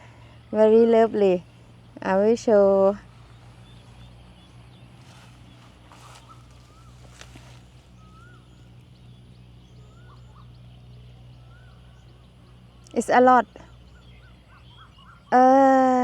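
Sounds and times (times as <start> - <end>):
faint bird calls: 0.0 - 16.0
low steady hum: 0.0 - 16.0
faint rustles: 2.7 - 8.6.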